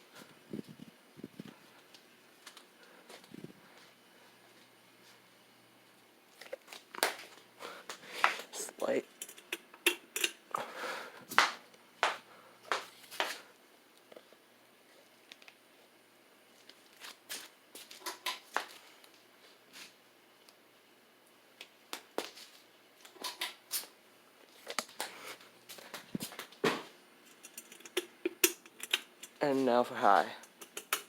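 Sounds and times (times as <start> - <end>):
ceiling fan sharp clicks: 7.9 - 10.4, 27.3 - 29.7, 30.3 - 31.0.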